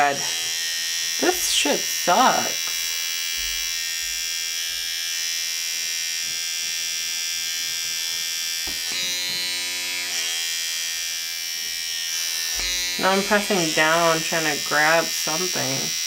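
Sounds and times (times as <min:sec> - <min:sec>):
small suction motor whine: 0:07.0 - 0:15.7.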